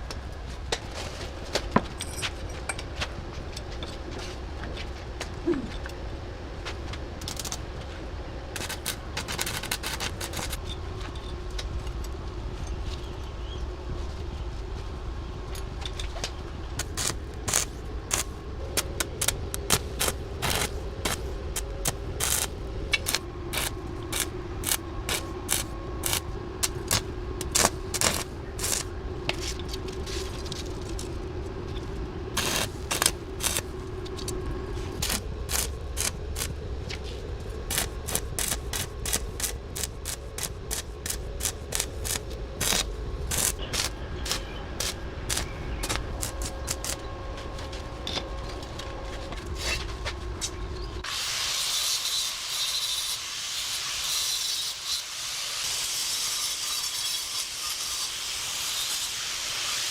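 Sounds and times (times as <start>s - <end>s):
steady low hum: 0.0s - 51.2s
metal tools clinking and scraping: 1.8s - 3.1s.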